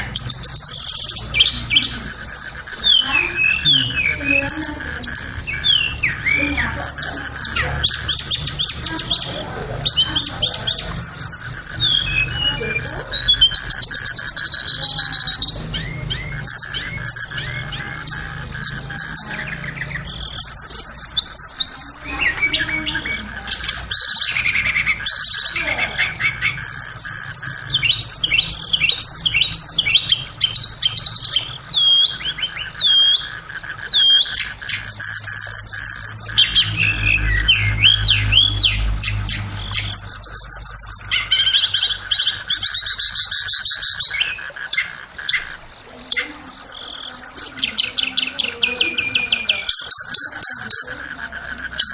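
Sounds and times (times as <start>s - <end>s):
flowerpecker chirps and trills: 0.0s - 51.9s.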